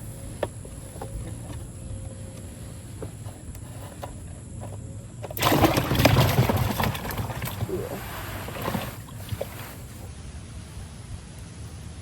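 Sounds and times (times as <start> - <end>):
loud splashing: 5.4 - 9.6.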